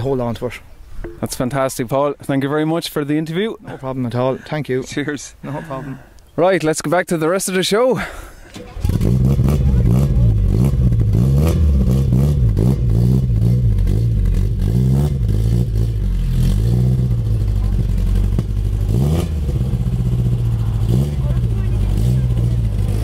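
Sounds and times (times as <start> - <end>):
car engine revving: 8.6 - 23.0.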